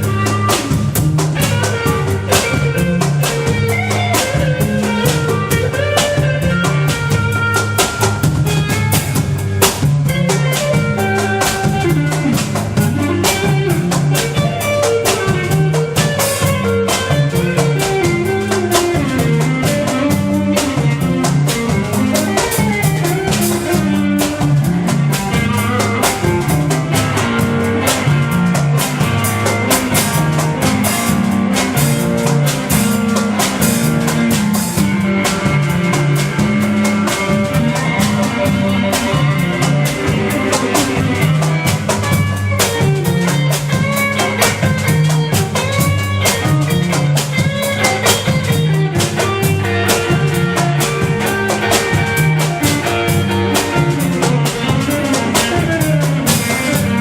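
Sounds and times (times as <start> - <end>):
band music: 0.0 - 57.0.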